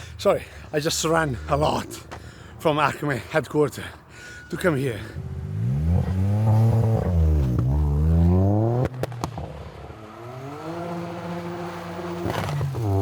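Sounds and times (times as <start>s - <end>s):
car engine accelerating hard: 5.2s - 13.0s
exhaust pops: 8.7s - 9.7s, 12.2s - 12.9s.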